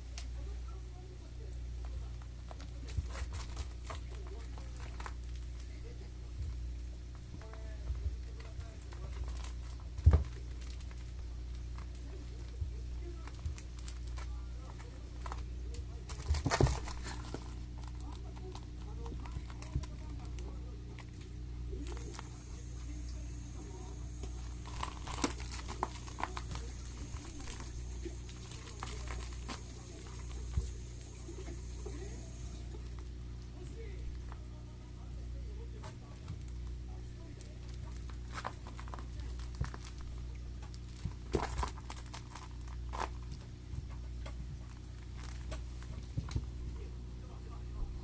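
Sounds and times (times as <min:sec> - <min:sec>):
steady low hum: 0:00.0 - 0:48.0
kitten playing with a toy: 0:01.7 - 0:34.4.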